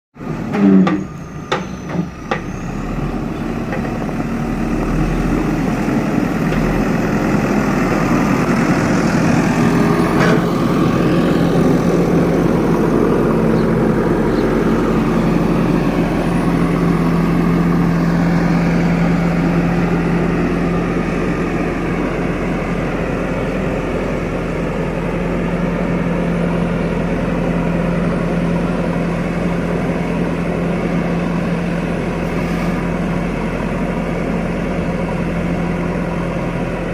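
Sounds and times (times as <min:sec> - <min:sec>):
diesel engine running: 0:00.2 - 0:36.9.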